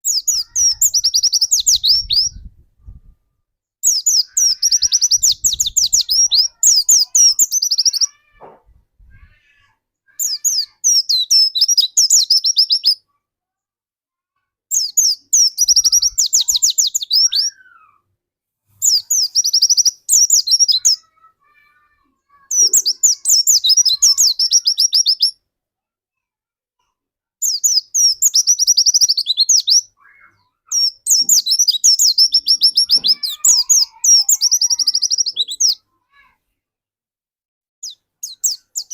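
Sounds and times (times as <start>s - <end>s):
bird twittering song: 0.0s - 2.5s, 3.8s - 8.2s, 10.1s - 13.0s, 14.7s - 17.6s, 18.8s - 21.1s, 22.3s - 25.4s, 27.4s - 35.8s, 37.8s - 38.9s.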